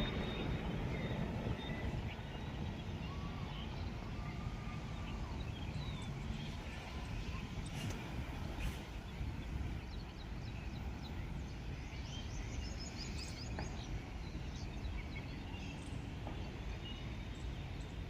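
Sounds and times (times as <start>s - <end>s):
low outdoor rumble: 0.0s - 11.6s.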